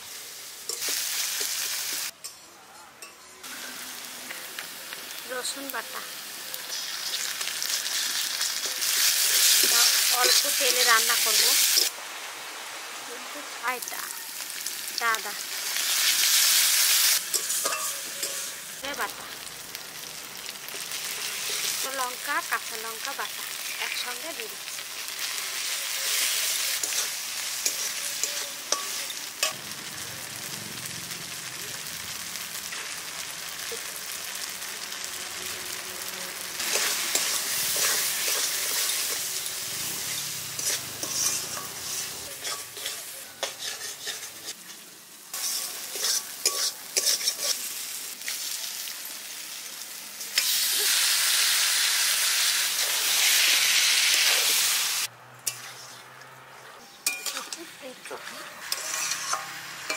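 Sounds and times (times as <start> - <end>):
paste sizzling in hot oil: 0.0 - 2.2, 3.4 - 56.0, 57.0 - 59.9
spatula scraping pan: 40.1 - 44.8, 45.4 - 47.7, 55.4 - 59.9.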